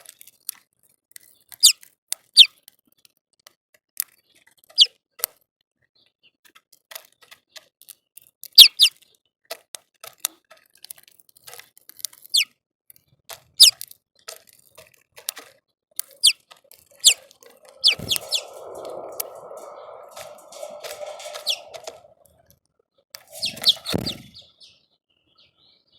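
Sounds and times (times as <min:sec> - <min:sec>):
birds pecking at seed: 0:16.0 - 0:22.2, 0:23.3 - 0:24.2
small birds chirping: 0:16.0 - 0:22.2, 0:23.3 - 0:25.9
steady rustling: 0:16.1 - 0:22.4, 0:23.2 - 0:24.1
thump: 0:23.8 - 0:24.3.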